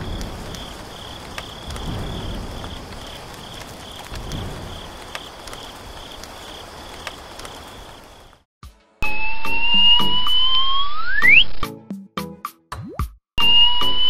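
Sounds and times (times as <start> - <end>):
thunder rolling: 0.0 - 8.4
crickets chirping: 0.0 - 8.5
rain: 0.0 - 8.5.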